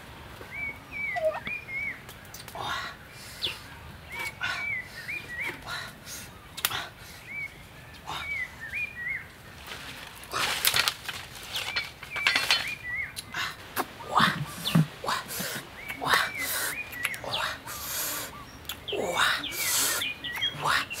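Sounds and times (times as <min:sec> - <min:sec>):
bird whistled chirps: 0:00.5 - 0:02.0
rustling handling noise: 0:09.6 - 0:12.9.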